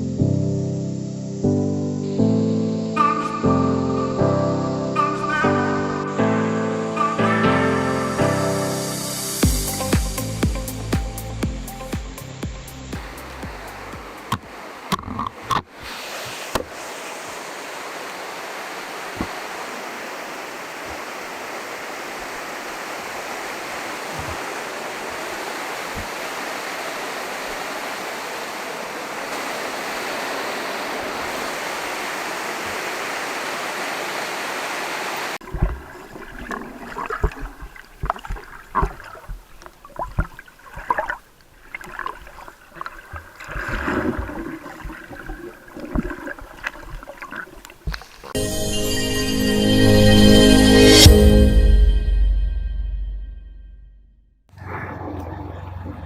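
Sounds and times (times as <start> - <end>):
waterfall roaring: 12.9 - 35.4.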